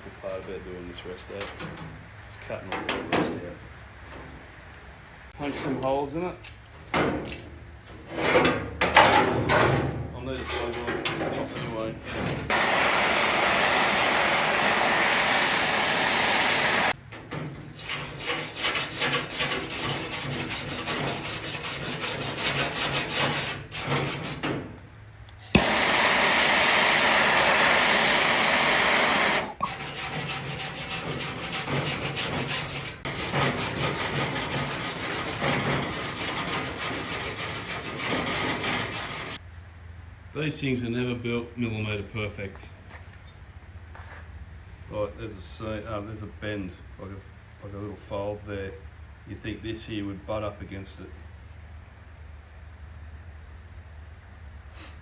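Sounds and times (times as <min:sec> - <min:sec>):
power tool running on sheet steel: 0:12.5 - 0:17.0, 0:25.5 - 0:29.6.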